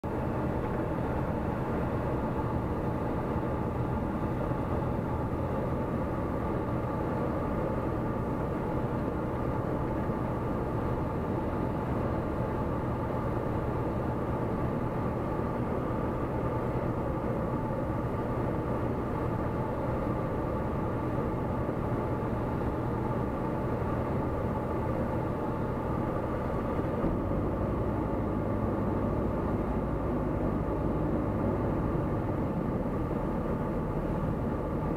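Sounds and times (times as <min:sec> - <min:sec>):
light aircraft engine droning: 0:00.0 - 0:34.9.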